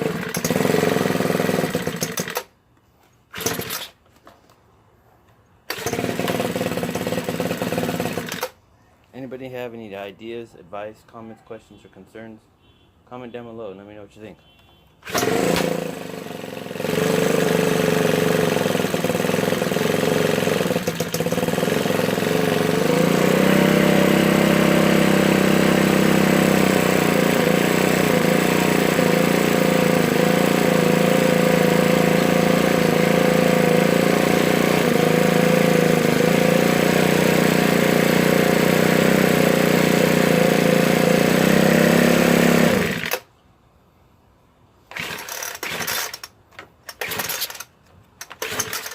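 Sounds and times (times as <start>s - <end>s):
leaf blower engine running: 0.0s - 2.5s, 3.3s - 3.9s, 5.7s - 8.6s, 15.0s - 43.3s, 44.9s - 46.2s, 47.0s - 47.6s, 48.3s - 48.9s.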